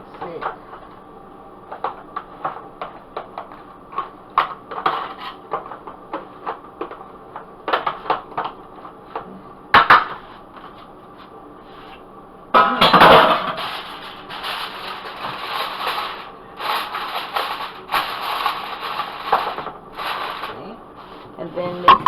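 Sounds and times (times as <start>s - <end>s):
dishes and utensils clinking: 21.6s - 22.0s.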